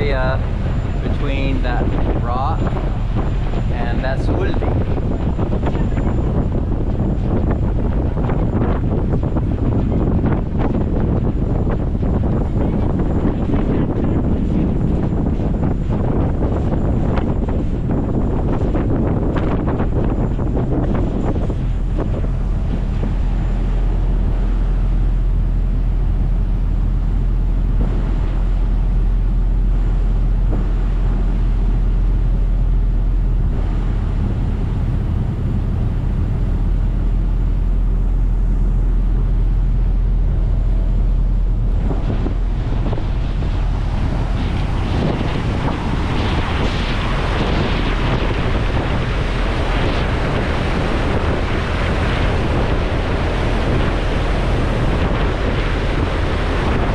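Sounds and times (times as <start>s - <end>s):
ferry engine droning: 0.0s - 56.9s
water rushing along hull: 0.0s - 56.9s
wind buffeting microphone: 0.0s - 56.9s.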